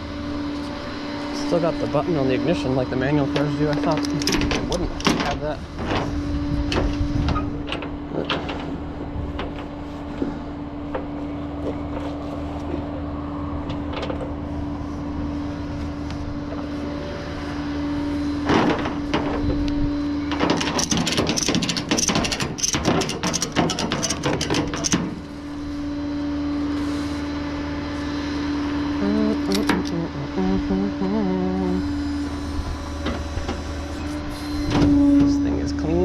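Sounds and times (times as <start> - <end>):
vehicle engine humming: 0.0 - 36.0
dense clattering and clicking: 20.4 - 25.2.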